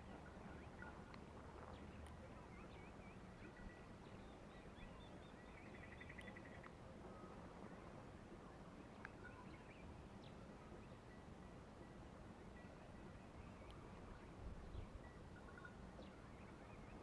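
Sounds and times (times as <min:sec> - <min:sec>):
low steady hiss: 0:00.0 - 0:17.0
small birds chirping: 0:00.2 - 0:07.9.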